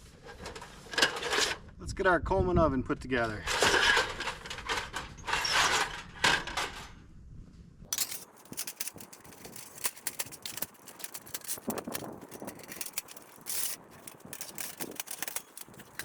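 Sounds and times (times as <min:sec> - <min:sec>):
metal scrape: 0:03.4 - 0:06.9, 0:07.9 - 0:16.0
metallic clicks and rattles: 0:07.9 - 0:16.0.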